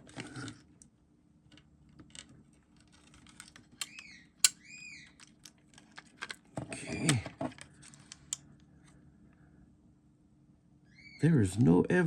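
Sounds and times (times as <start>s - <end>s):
low steady hum: 0.0s - 12.0s
bird chirping: 3.8s - 5.2s, 10.8s - 11.3s.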